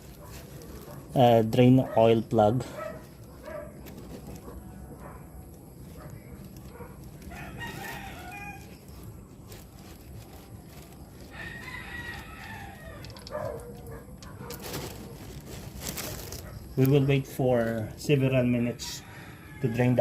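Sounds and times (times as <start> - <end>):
rooster crowing: 7.3 - 8.8, 11.3 - 13.3, 18.8 - 20.0.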